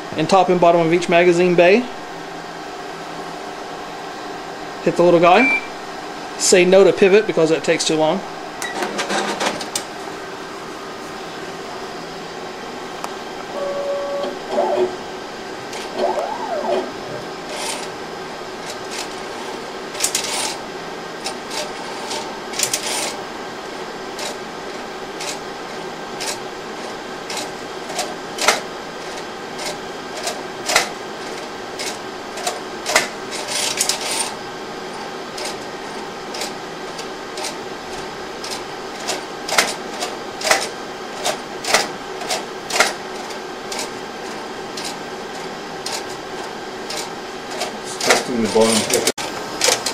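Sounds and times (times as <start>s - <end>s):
mechanism whirring: 13.3s - 17.9s
machine hum: 13.4s - 17.8s.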